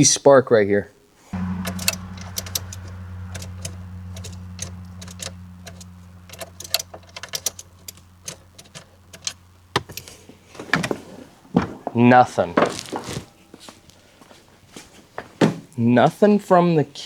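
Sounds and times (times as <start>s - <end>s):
light clicks: 1.4s - 10.2s
low electrical hum: 1.4s - 12.0s.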